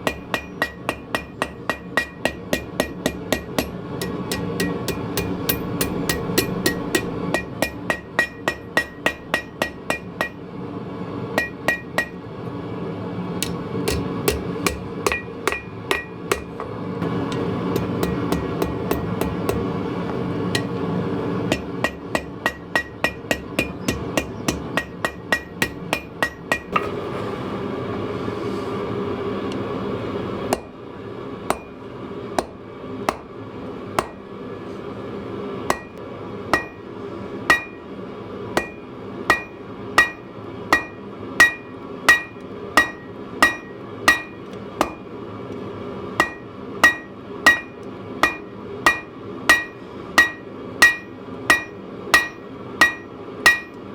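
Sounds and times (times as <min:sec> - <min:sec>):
hammer striking steel on anvil: 0:00.0 - 0:10.4, 0:11.4 - 0:12.3, 0:13.4 - 0:27.0, 0:30.5 - 0:30.8, 0:31.5 - 0:31.8, 0:32.4 - 0:33.3, 0:34.0 - 0:34.3, 0:35.7 - 0:36.9, 0:37.5 - 0:37.9, 0:38.6 - 0:45.1, 0:46.2 - 0:53.9.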